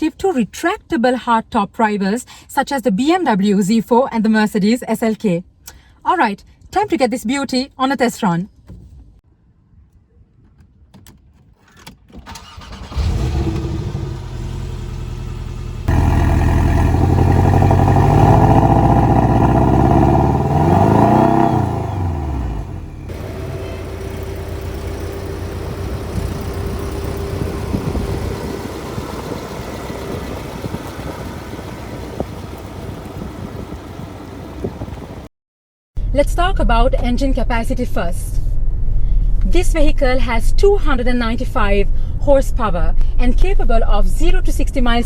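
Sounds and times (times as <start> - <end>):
car engine starting and revving: 12.3 - 35.3.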